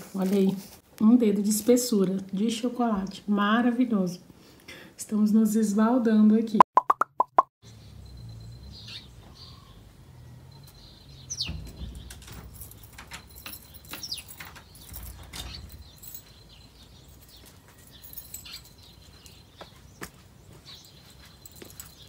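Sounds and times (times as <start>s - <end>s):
birds chirping: 7.6s - 22.0s.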